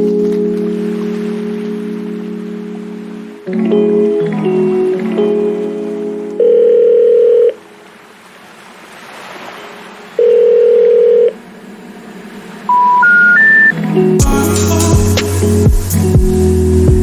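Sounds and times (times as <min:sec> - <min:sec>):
low steady ringback tone: 0:06.4 - 0:07.6, 0:10.2 - 0:11.4, 0:12.7 - 0:13.8
rising three-note beeps: 0:12.7 - 0:14.1.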